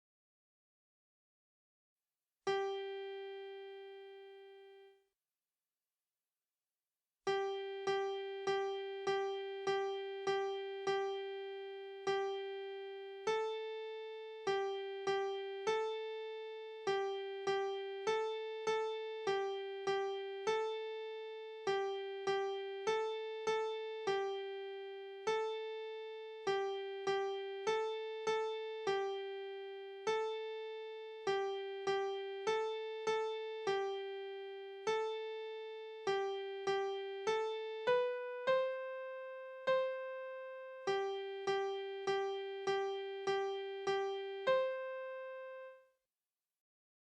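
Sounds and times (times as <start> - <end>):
piano melody: 40.8 - 45.6.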